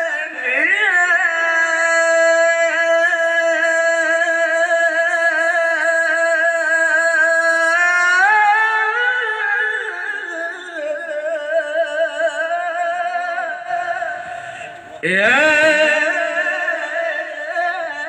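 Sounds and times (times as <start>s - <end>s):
man singing melismatic phrases: 14.9s - 18.0s.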